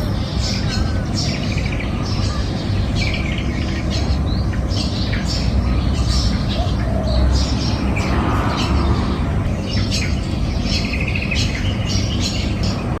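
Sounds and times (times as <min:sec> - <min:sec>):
bird trill: 0:00.0 - 0:13.0
birds chirping and calling: 0:00.0 - 0:13.0
low rumble: 0:07.0 - 0:10.7.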